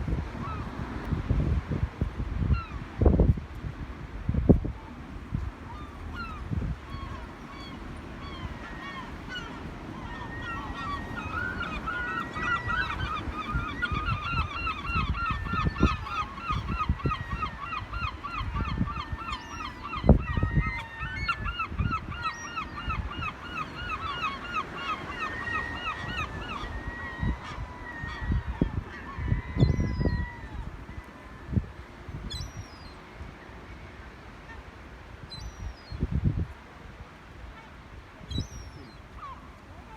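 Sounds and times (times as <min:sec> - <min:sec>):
gulls calling: 0:05.6 - 0:36.0, 0:37.5 - 0:39.9.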